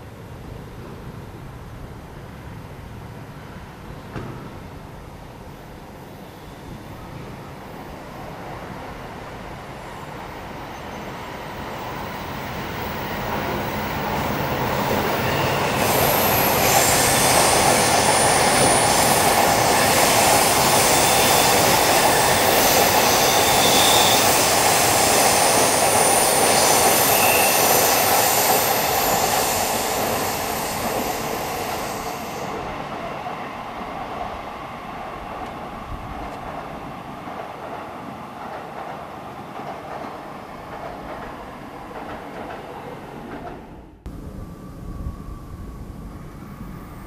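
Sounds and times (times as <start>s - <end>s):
train wheels on track: 0.0s - 47.0s
high wheel squealing: 19.8s - 32.5s.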